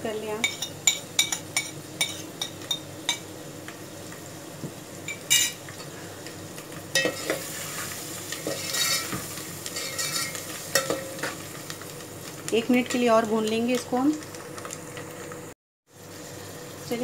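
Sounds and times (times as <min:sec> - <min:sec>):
food sizzling in a pot: 0:00.0 - 0:17.0
steel spoon scraping a pot: 0:08.4 - 0:09.2, 0:09.8 - 0:11.0.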